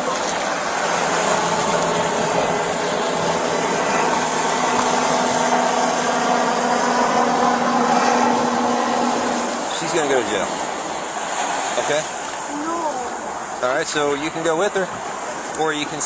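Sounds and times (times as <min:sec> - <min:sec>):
low hum: 0:00.0 - 0:09.8
vehicle engine idling: 0:00.0 - 0:11.0
steady rushing noise: 0:00.0 - 0:12.2.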